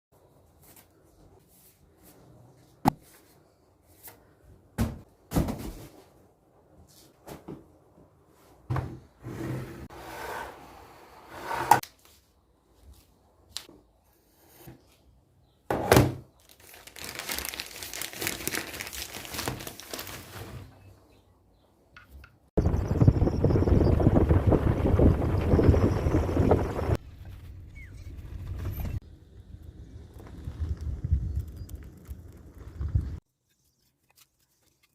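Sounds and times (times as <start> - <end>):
sharp knocks and thuds: 4.8 - 5.9
packaging crinkling and rustling: 16.4 - 20.7.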